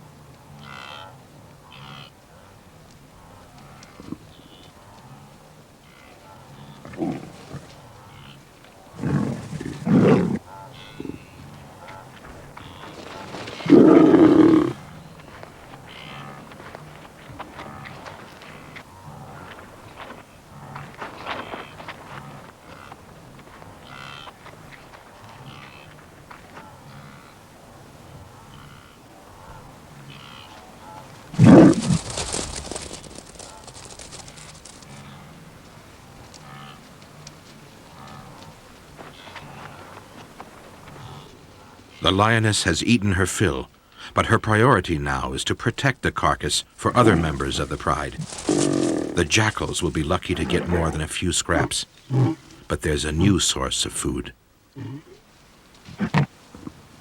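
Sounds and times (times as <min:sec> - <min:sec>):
lion growling and snarling: 0:06.6 - 0:08.1, 0:08.9 - 0:11.4, 0:13.2 - 0:15.0, 0:31.2 - 0:32.6, 0:46.9 - 0:51.0, 0:51.6 - 0:52.7
rough crackling noise: 0:11.8 - 0:26.7, 0:30.5 - 0:43.6, 0:44.2 - 0:54.3.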